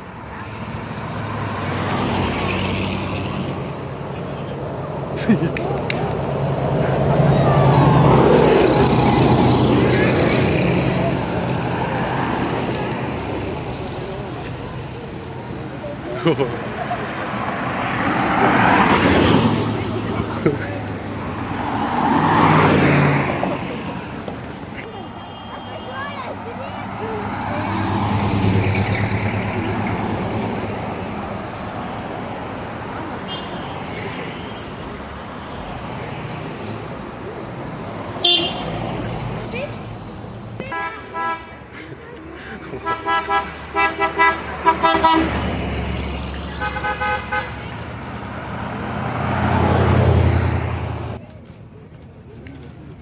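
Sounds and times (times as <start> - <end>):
car horn short toots: 38.2 - 38.6.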